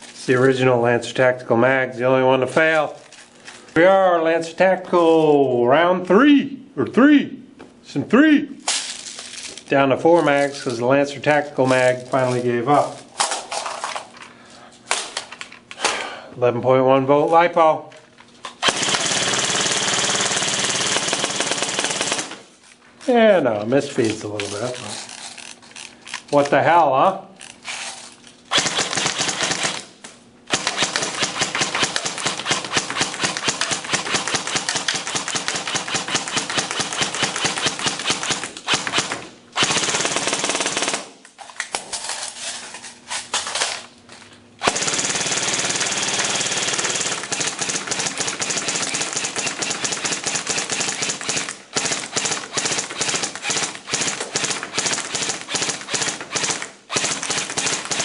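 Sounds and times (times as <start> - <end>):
airsoft gun firing bursts: 18.6 - 22.5, 28.5 - 29.9, 30.5 - 41.2, 44.6 - 58.0.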